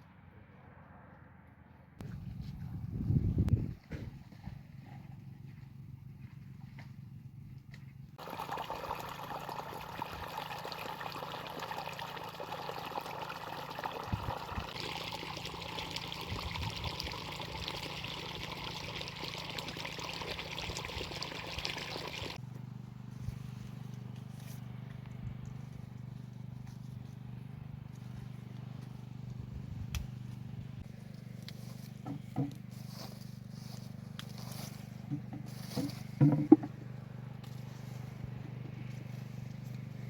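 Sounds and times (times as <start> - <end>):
liquid pouring: 8.2 - 22.4.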